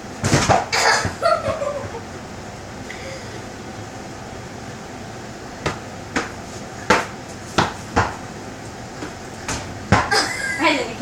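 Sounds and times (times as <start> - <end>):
volleyball being hit: 5.6 - 8.2, 9.0 - 10.2.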